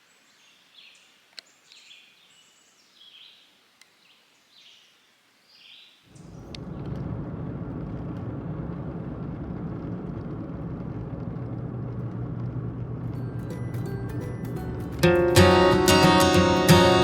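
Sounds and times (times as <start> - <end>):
car engine and road noise: 6.2 - 17.0.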